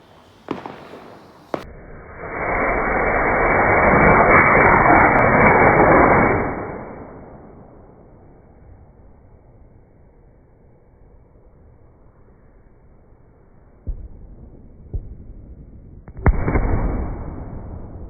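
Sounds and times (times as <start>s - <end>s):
firework hissing: 0.0s - 8.1s.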